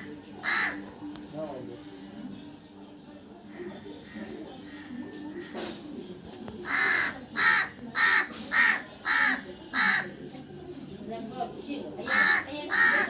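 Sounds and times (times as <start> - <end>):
crow cawing: 0.4 - 0.8, 6.6 - 10.2, 12.0 - 13.0.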